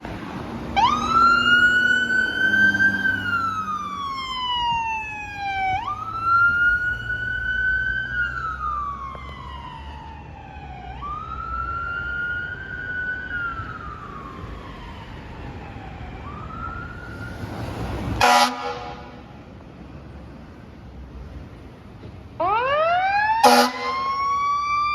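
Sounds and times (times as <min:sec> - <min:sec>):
fire truck siren wailing: 0:00.0 - 0:19.5, 0:22.4 - 0:24.9
truck engine rumble: 0:00.0 - 0:24.9
loud horn blast: 0:18.2 - 0:19.3, 0:23.4 - 0:24.0.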